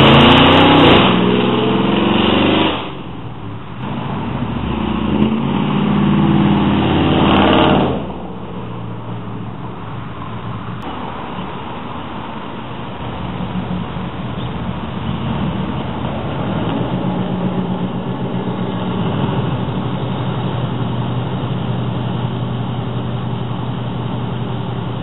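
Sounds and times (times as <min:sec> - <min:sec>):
low car exhaust note: 0:12.5 - 0:25.0.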